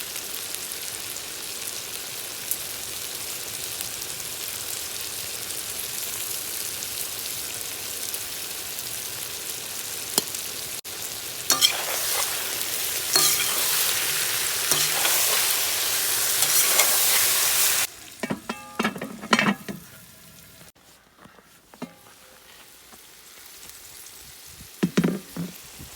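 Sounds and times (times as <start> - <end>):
food sizzling in hot oil: 0.0 - 20.8, 21.7 - 25.9
metallic knocks and clinks: 18.2 - 19.9.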